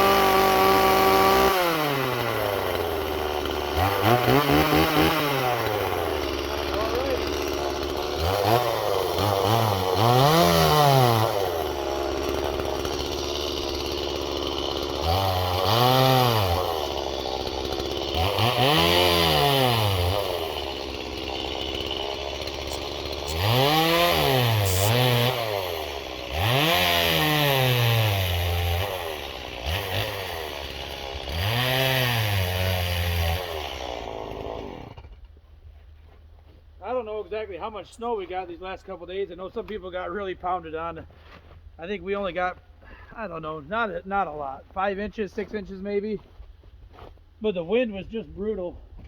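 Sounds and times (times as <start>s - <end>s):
chainsaw revving: 0.0s - 35.2s.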